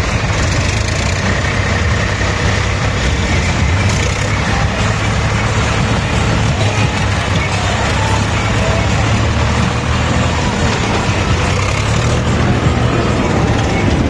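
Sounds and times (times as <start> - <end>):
road noise: 0.0 - 14.0
tractor diesel engines droning: 0.0 - 14.0.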